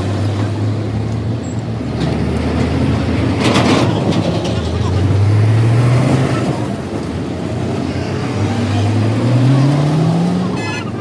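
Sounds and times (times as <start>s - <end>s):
vehicle engine speeding up: 4.4s - 10.7s.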